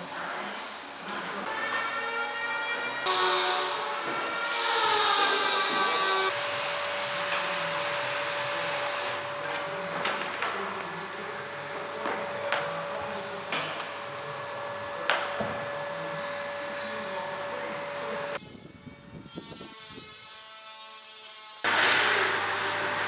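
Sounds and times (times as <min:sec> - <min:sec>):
workshop machine whining: 0:01.3 - 0:18.4, 0:21.7 - 0:23.0.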